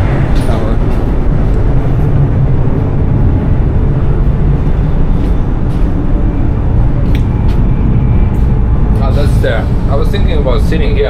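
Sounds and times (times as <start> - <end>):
train rumble inside carriage: 0.0 - 11.0.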